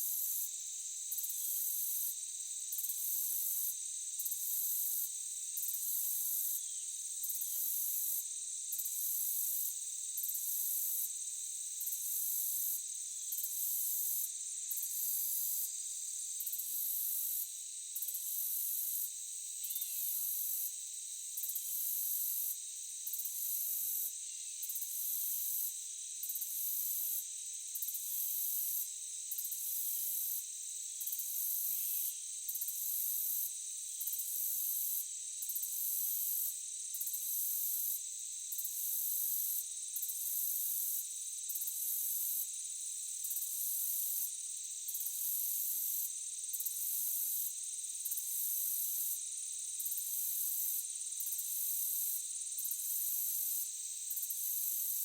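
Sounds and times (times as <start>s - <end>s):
crickets trilling: 0.3s - 10.4s, 11.8s - 29.6s.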